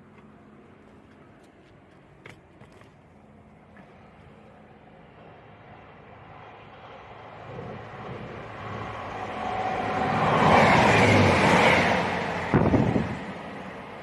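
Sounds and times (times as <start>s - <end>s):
train passing close by: 4.9s - 14.0s.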